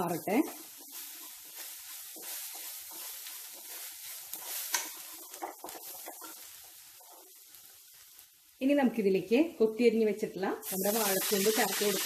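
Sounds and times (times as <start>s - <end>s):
spatula scraping and tapping pan: 0.0s - 7.8s
food sizzling in oil: 0.0s - 9.6s, 10.6s - 12.0s.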